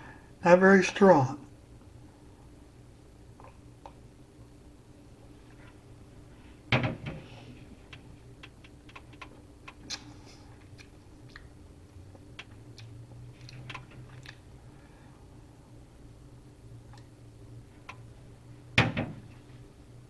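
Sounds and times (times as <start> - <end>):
lip smacks and tongue clicks: 9.7 - 14.4.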